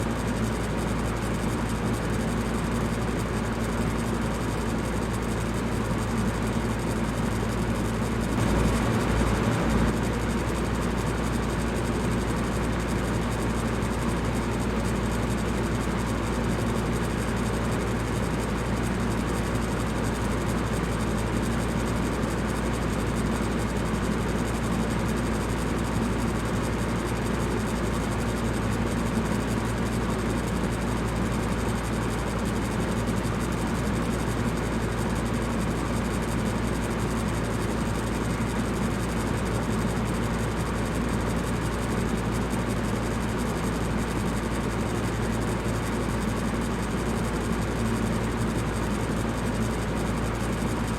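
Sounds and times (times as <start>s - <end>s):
electric fan humming: 8.3s - 10.6s.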